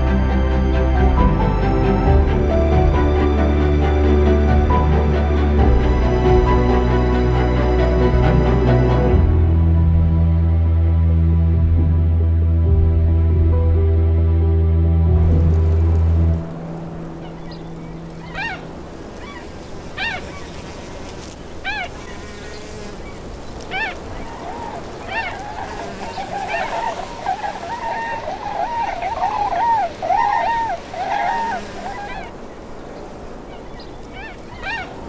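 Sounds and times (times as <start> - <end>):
birds calling: 16.5 - 35.0.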